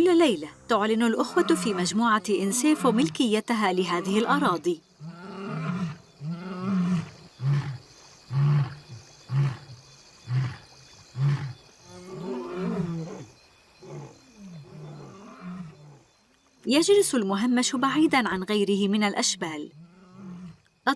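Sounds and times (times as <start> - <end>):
lion roaring and grunting: 5.0 - 16.1.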